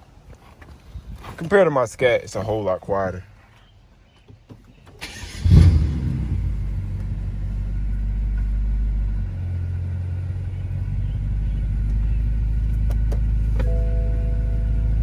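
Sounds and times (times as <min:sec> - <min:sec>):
car engine starting and idling: 0:04.9 - 0:15.0.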